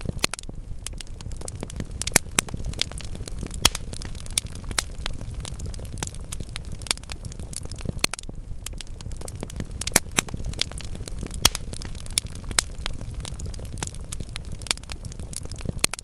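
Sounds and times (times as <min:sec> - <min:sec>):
logs crackling in fireplace: 0:00.0 - 0:16.0.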